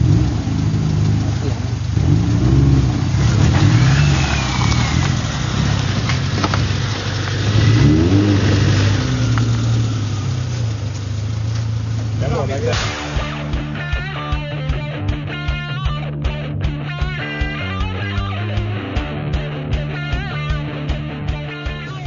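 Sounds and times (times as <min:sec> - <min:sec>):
engine revving under load: 0:00.0 - 0:15.0.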